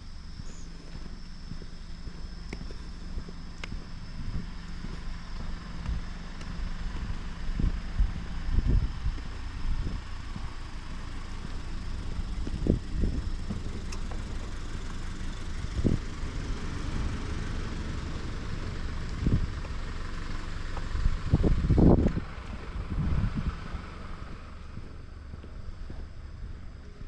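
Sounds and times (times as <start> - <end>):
wind buffeting microphone: 5.8 - 27.0.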